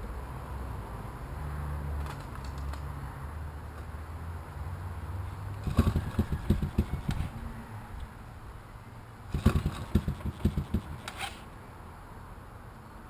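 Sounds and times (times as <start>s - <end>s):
quad engine cranking: 5.6s - 7.3s, 9.3s - 11.4s.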